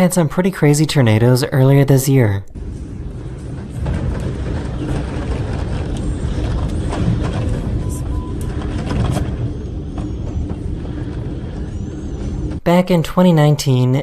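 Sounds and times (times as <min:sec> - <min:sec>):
strong wind roaring: 0:02.6 - 0:12.6
wind buffeting microphone: 0:02.6 - 0:12.6.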